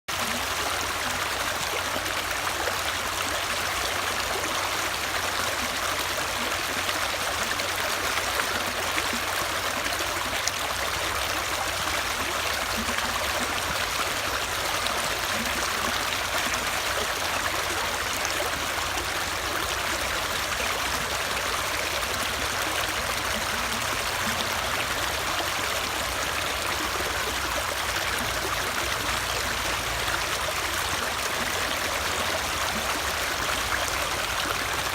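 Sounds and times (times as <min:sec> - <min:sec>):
stream water rushing: 0:00.1 - 0:34.9.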